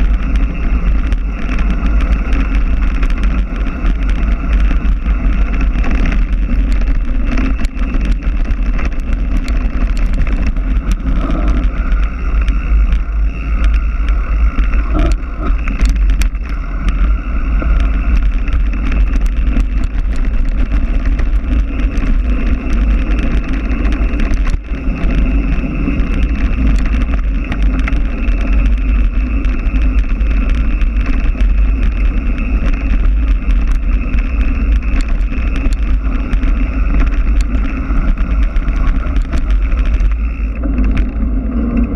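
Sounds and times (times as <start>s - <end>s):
bike clicks and knocks: 0.0s - 41.9s
mountain bike rattling on trail: 0.0s - 41.9s
wind buffeting microphone: 0.0s - 41.9s.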